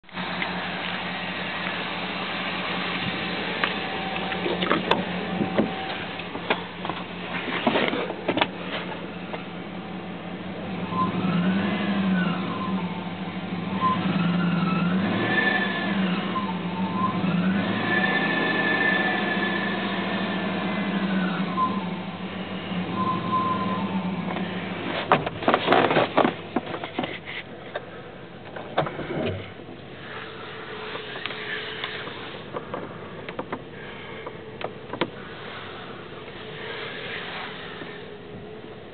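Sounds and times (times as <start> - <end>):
car engine revving: 0.0 - 26.8
engine whine: 0.0 - 38.9.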